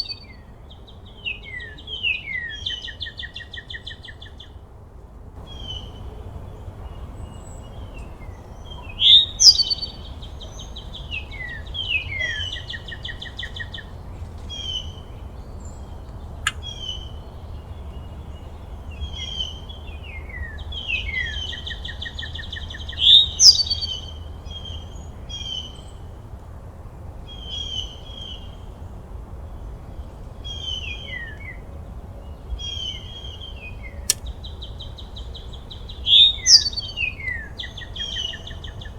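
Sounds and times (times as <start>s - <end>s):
birds singing and calling: 5.4s - 26.0s, 32.2s - 38.9s.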